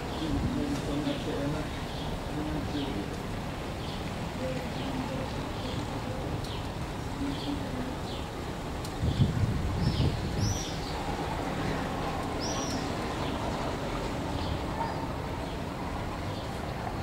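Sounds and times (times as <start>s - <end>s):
small birds chirping: 0.1s - 13.6s.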